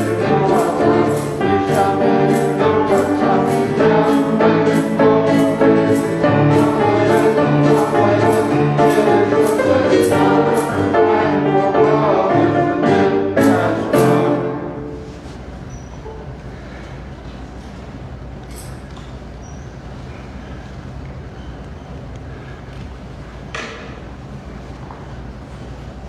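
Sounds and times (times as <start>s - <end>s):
instrumental accompaniment: 0.0s - 15.0s
choir singing a hymn: 0.0s - 15.2s.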